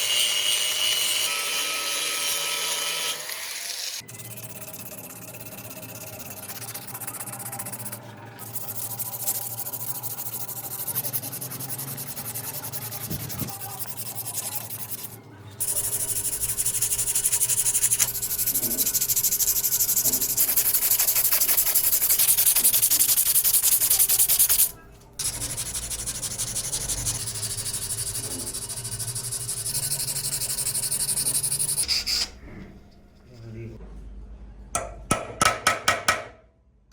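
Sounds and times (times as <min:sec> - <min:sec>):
sanding rasp: 0:04.8 - 0:32.2.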